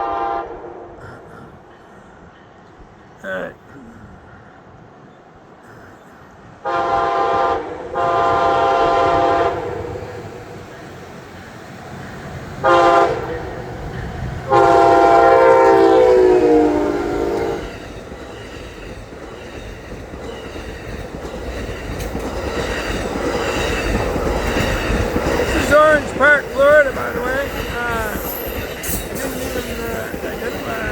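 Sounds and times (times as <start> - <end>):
locomotive horn blasts: 0.0 - 0.8, 6.6 - 9.8, 12.6 - 13.4, 14.5 - 17.7
train wheels rumbling on rails: 1.0 - 30.9.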